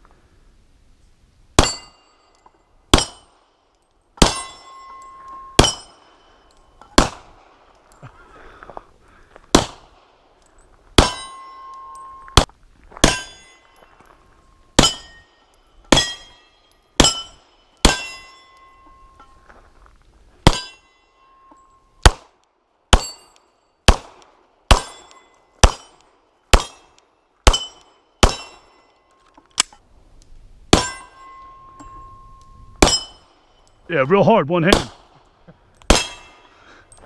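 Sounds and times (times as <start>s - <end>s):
steel plate clanging: 1.6s - 2.4s, 4.2s - 7.0s, 11.0s - 12.4s, 13.0s - 14.0s, 14.7s - 19.4s, 30.7s - 33.8s, 35.9s - 37.0s
gunshots: 7.0s - 7.6s, 9.5s - 10.1s, 22.0s - 22.3s, 23.9s - 25.9s, 34.6s - 35.2s.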